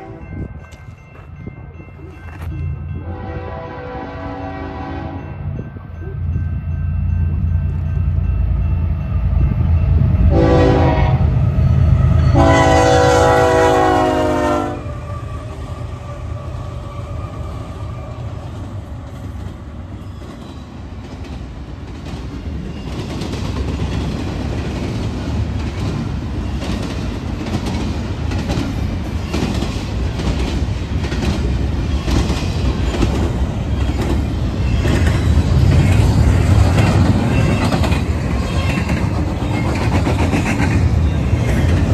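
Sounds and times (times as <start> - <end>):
train horn blasts: 0.0 - 0.4, 3.0 - 5.4, 10.3 - 11.4, 12.0 - 16.2
train wheels clacking on rails: 17.1 - 41.9.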